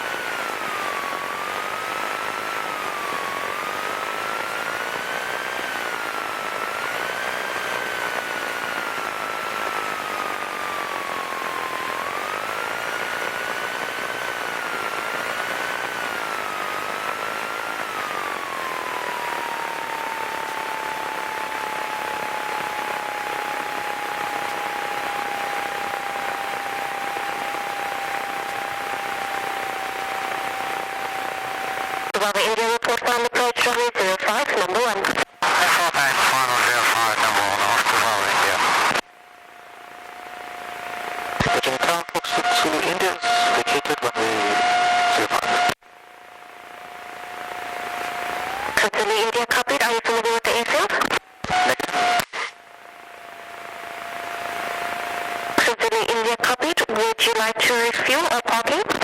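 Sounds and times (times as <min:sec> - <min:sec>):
intercom hiss: 0:32.1 - 0:39.0, 0:41.4 - 0:45.8, 0:48.5 - 0:52.6, 0:55.6 - 0:59.0.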